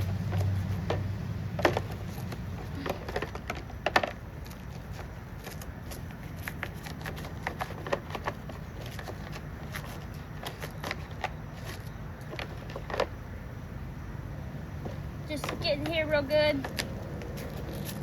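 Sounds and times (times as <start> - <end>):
scrubbing and scraping metal part: 0.0 - 13.2.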